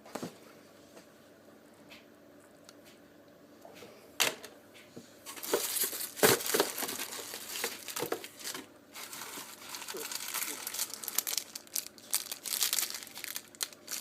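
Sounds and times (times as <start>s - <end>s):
packaging crinkling: 5.3s - 14.0s
packaging snapping: 5.3s - 14.0s.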